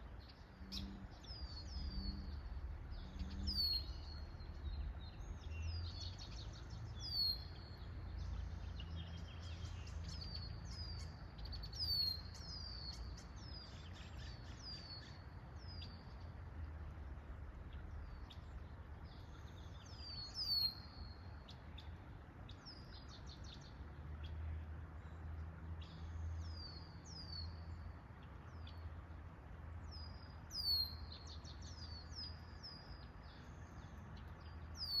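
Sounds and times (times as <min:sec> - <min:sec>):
steady low rumble: 0:00.0 - 0:14.7
small birds chirping: 0:00.0 - 0:35.0.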